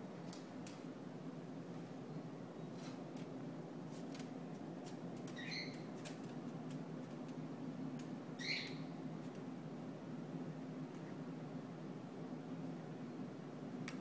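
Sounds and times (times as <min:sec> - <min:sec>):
parrot chirping: 0:05.4 - 0:05.9, 0:08.4 - 0:08.8.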